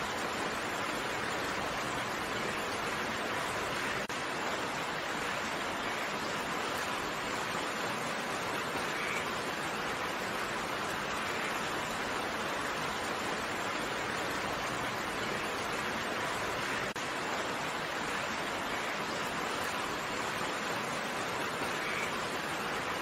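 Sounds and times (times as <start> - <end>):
steady rain hiss: 0.0 - 23.0.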